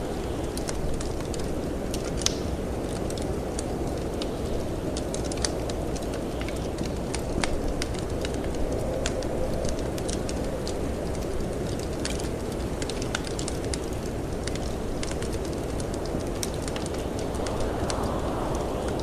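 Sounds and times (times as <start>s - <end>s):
wood fire crackling: 0.0s - 19.0s
wind rushing: 15.0s - 19.0s.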